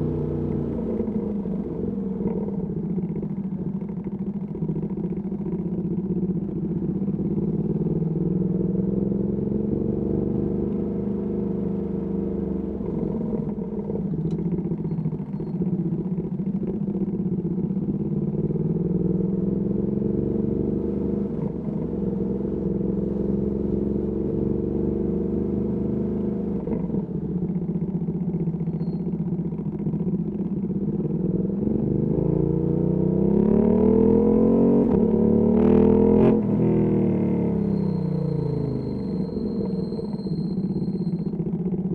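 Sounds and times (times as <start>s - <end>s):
motorcycle engine revving: 30.7s - 41.4s.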